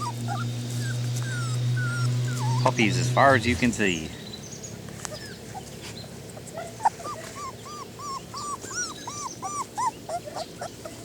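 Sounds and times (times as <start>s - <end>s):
puppies whimpering: 0.0s - 3.2s, 6.6s - 11.0s.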